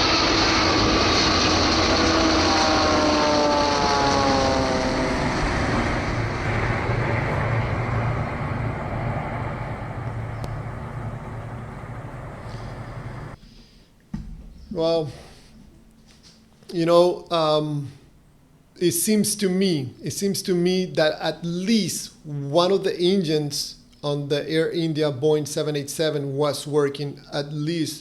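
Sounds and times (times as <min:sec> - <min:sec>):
jet airplane passing low: 0:00.0 - 0:13.4.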